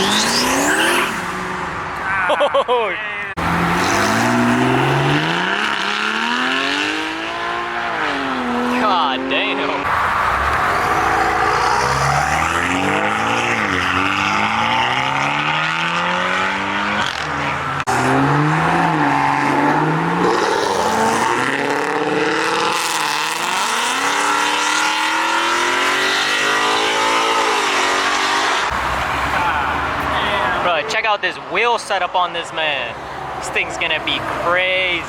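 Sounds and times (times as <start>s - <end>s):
sports car engines accelerating: 3.4s - 30.7s.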